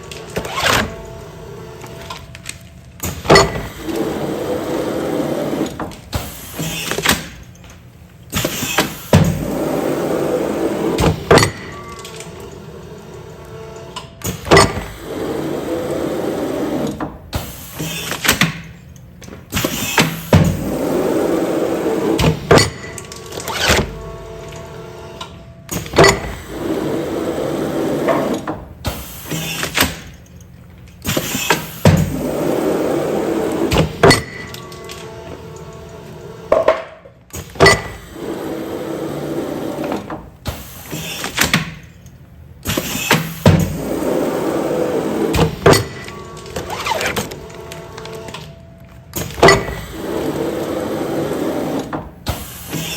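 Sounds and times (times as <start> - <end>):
sealing machine mechanism clunks: 28.2 - 32.2, 39.9 - 43.9, 45.2 - 50.7
machine running noise: 42.6 - 52.9.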